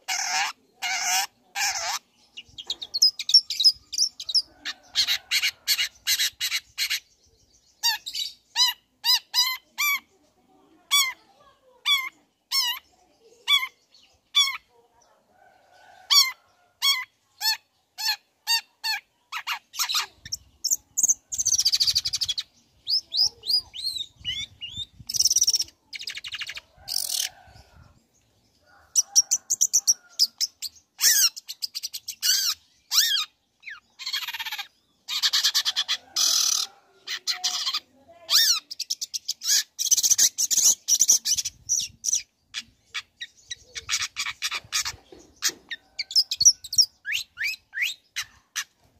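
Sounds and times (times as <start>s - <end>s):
bird fast chattering: 0.0s - 7.1s, 16.9s - 27.6s, 28.9s - 48.8s
bird harsh rasping calls: 0.0s - 7.1s, 28.9s - 48.8s.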